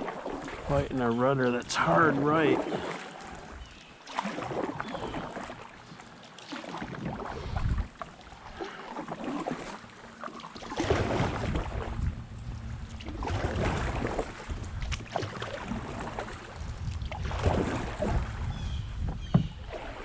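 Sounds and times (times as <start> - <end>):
wind rumbling on microphone: 0.0 - 3.8, 6.9 - 8.0, 10.8 - 20.0
paddle strokes splashing water: 0.0 - 20.0.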